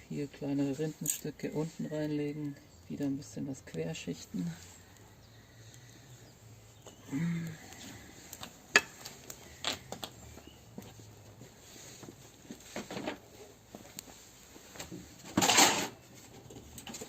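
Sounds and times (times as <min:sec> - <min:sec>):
sticks clicking on campfire: 0:06.9 - 0:10.2.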